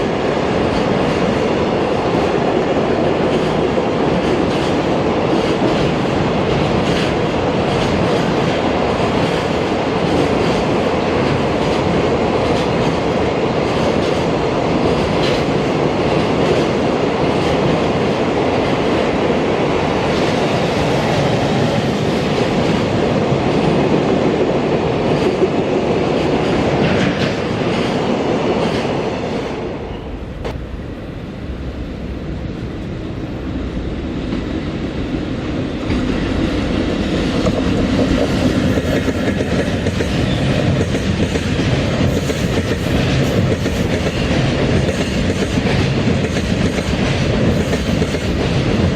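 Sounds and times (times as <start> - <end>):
train wheels clacking over rail joints: 3.2 - 19.1, 35.8 - 48.9.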